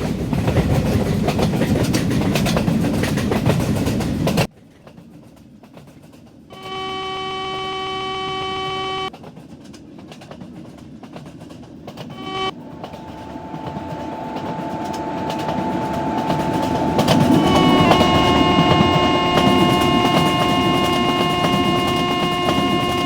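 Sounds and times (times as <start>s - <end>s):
wheel clatter on rails: 0.0s - 6.9s, 9.1s - 23.0s
train rumble: 0.0s - 23.0s
train horn blasts: 6.5s - 9.1s, 12.1s - 23.0s.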